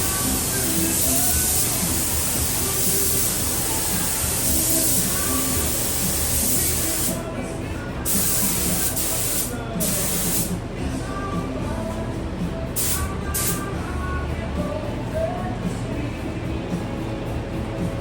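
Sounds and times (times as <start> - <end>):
spray gun hissing: 0.0 - 7.2, 8.1 - 10.6, 12.8 - 13.6.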